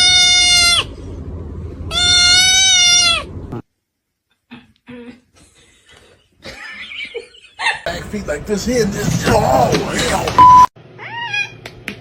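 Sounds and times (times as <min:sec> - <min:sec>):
cat meowing: 0:01.9 - 0:03.3, 0:11.0 - 0:11.6.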